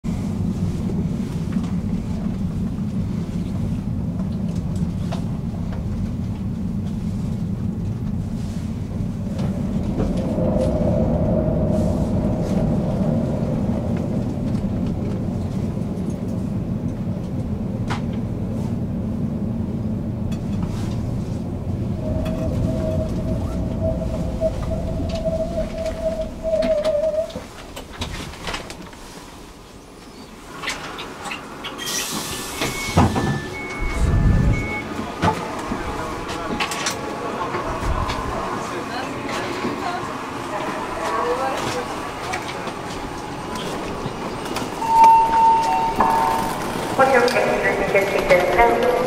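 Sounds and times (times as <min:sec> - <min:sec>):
train wheels rumbling on rails: 0:00.0 - 0:49.0
high-pitched brake squeal: 0:31.8 - 0:34.1, 0:44.3 - 0:46.8.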